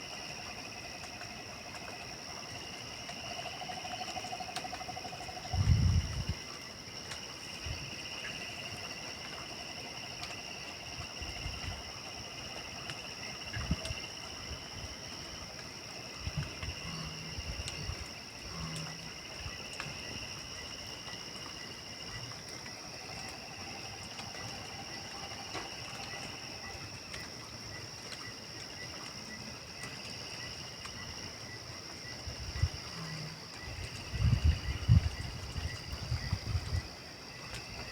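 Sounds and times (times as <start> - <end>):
crickets and insects chirping: 0.0 - 37.9
frogs calling: 0.1 - 6.3, 16.2 - 37.9.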